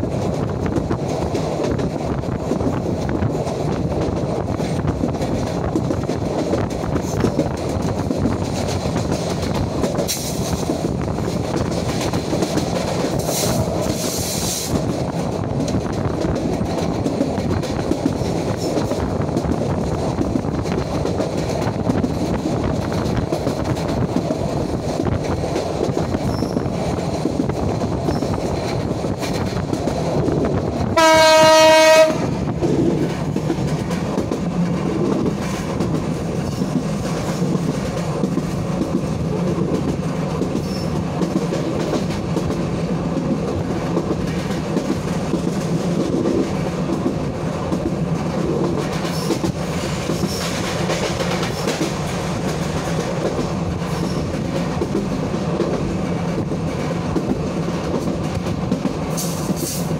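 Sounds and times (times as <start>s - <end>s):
train wheels rumbling on track: 0.0s - 59.9s
train horn blast: 31.0s - 32.4s.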